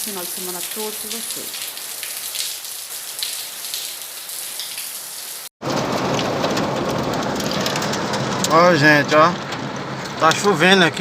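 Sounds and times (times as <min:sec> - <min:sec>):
hailstones ticking: 0:00.0 - 0:02.5, 0:05.6 - 0:10.4
heavy rain pattering: 0:00.0 - 0:11.0.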